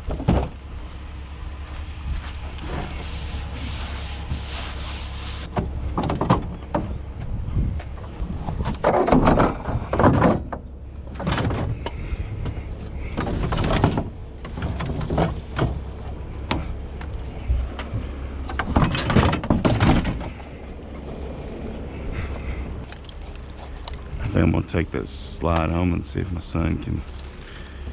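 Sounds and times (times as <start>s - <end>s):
items knocking and clattering: 17.4s - 20.4s.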